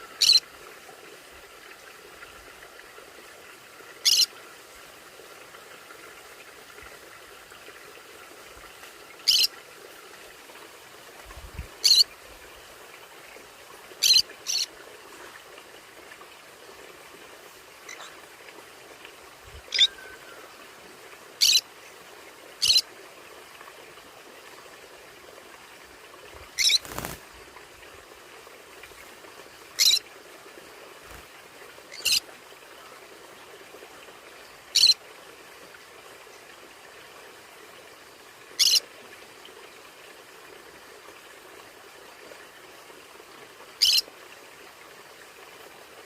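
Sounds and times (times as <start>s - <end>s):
background hiss: 0.0s - 38.8s
parrots calling: 0.2s - 0.4s, 4.0s - 4.3s, 9.3s - 9.5s, 11.8s - 12.0s, 19.7s - 20.0s, 26.6s - 27.1s, 29.8s - 30.0s.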